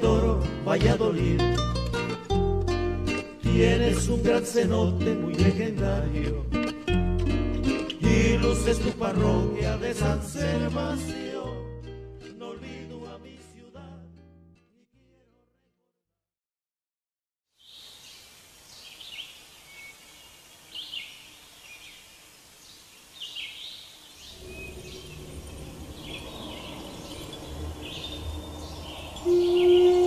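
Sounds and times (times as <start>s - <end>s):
steady background hiss: 17.6s - 30.0s
birds chirping: 17.8s - 30.0s
low rumble: 24.4s - 29.3s.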